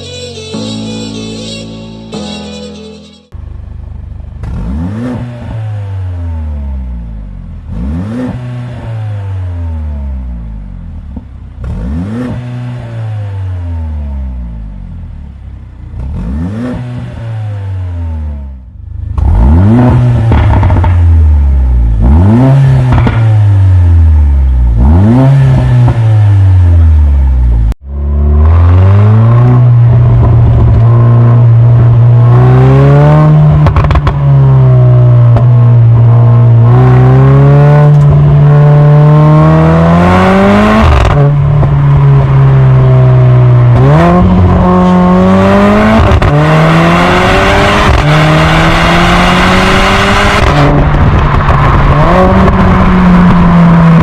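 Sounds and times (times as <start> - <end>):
loud car engine revving: 4.3 - 54.0.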